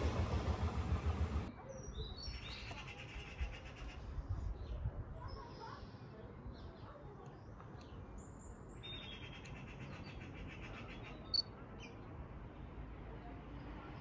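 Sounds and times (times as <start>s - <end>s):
small songbirds chirping: 0.4s - 12.7s
bird trill: 8.8s - 11.5s.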